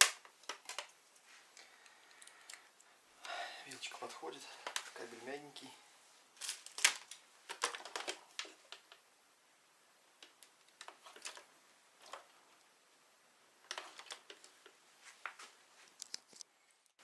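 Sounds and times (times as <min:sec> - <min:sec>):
plastic packaging clicks and rustles: 0:00.0 - 0:01.3, 0:04.5 - 0:05.1, 0:06.3 - 0:09.0, 0:10.2 - 0:12.4, 0:13.6 - 0:17.0.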